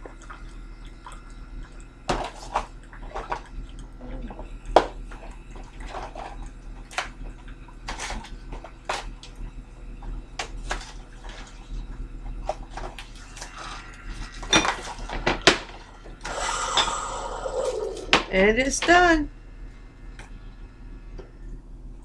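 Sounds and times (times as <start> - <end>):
coffee maker humming: 0.0 - 22.0.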